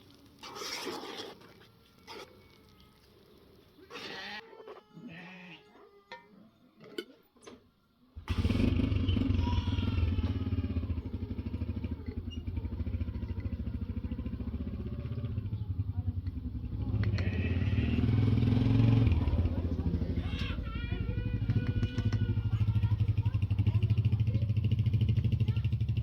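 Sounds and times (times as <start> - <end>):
engine with fast pulse: 8.2 - 26.0.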